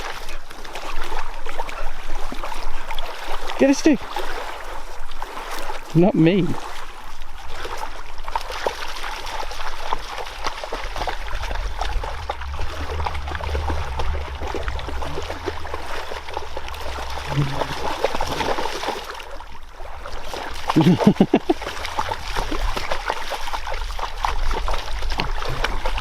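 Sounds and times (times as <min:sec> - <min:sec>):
water splashing and trickling: 0:00.0 - 0:26.0
low rumble: 0:09.7 - 0:26.0.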